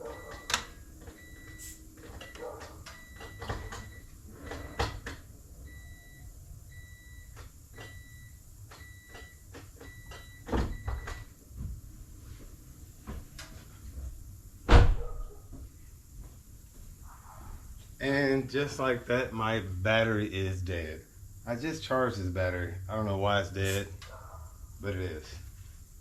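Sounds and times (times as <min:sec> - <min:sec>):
electronic warning beeps: 0:00.0 - 0:04.9, 0:05.6 - 0:11.3.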